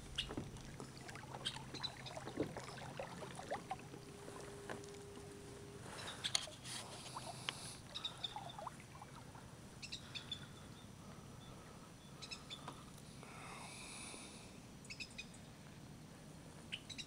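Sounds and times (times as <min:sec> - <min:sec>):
quiet low hum: 0:00.0 - 0:16.7
faint bird chirps: 0:01.4 - 0:03.2, 0:07.1 - 0:09.2, 0:09.8 - 0:12.8.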